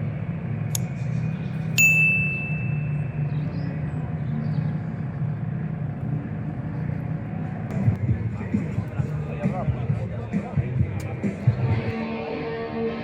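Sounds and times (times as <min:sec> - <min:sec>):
engine humming: 0:00.0 - 0:13.0
sharp metallic ding: 0:01.8 - 0:03.1.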